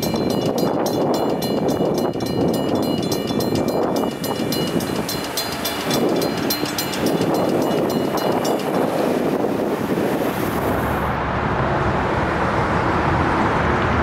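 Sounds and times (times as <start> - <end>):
crossing warning bell ringing: 0.0 - 10.6
train wheels rumbling on rails: 0.0 - 11.2.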